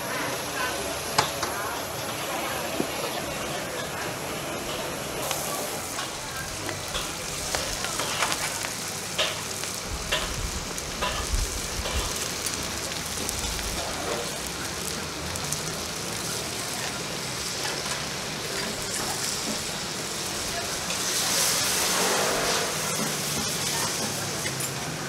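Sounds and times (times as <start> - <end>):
food sizzling in hot oil: 0.0 - 25.0.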